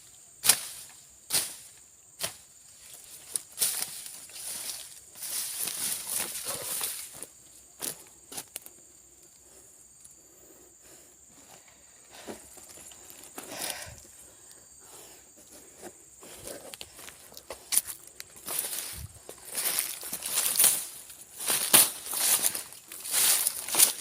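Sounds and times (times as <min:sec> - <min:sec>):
stems cut and crackling: 0:00.4 - 0:01.6, 0:19.5 - 0:24.0
vegetation rustling: 0:00.4 - 0:10.2, 0:11.2 - 0:24.0.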